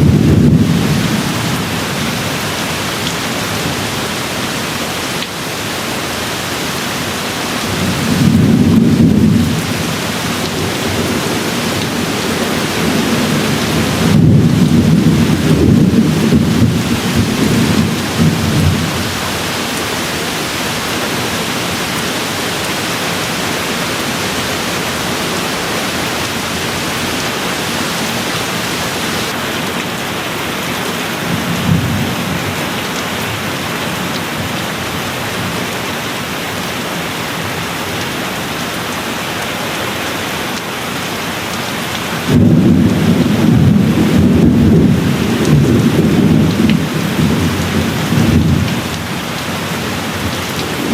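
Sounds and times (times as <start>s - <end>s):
thunder rumbling: 0.0s - 2.2s, 7.7s - 29.4s, 42.3s - 49.0s
steady rain falling: 0.0s - 50.9s.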